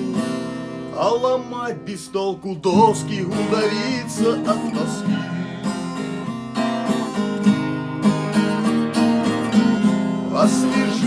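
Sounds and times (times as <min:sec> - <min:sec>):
person singing: 0:00.0 - 0:06.3, 0:10.3 - 0:11.0
acoustic guitar strumming: 0:00.0 - 0:11.0.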